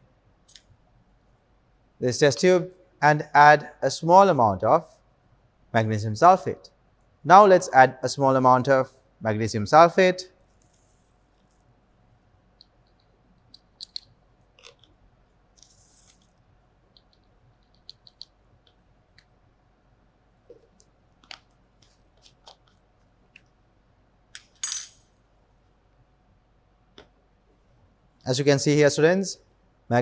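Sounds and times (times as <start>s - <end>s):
crystals clicking in glass tube: 12.6s - 14.7s.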